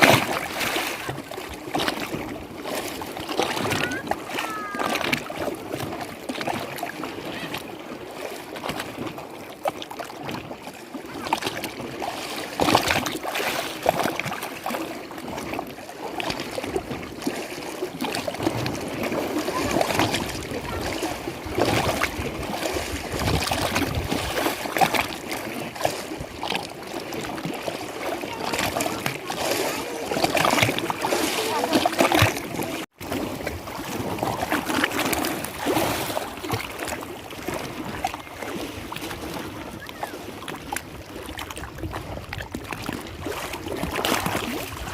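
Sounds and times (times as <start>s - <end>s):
lake water lapping and splashing: 0.0s - 44.9s.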